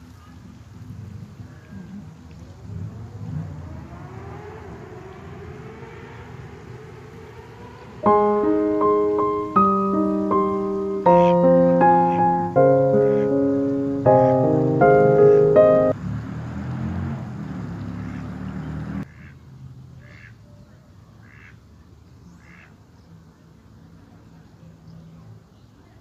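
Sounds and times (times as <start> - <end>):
faint rising tone: 2.7 - 16.0
piano music: 8.0 - 16.0.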